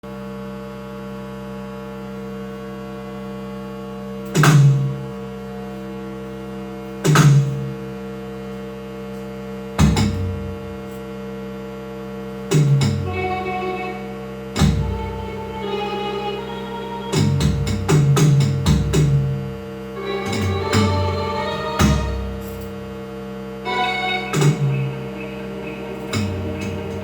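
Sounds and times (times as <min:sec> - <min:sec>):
synthesized drone: 0:05.2 - 0:09.0, 0:13.0 - 0:18.0, 0:19.0 - 0:27.0
electronic drum hits: 0:09.8 - 0:10.8, 0:14.6 - 0:15.6, 0:17.1 - 0:22.9, 0:23.7 - 0:27.0.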